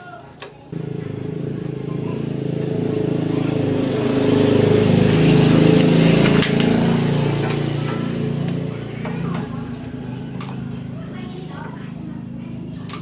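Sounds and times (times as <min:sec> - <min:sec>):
harvester engine running: 0:00.7 - 0:13.0.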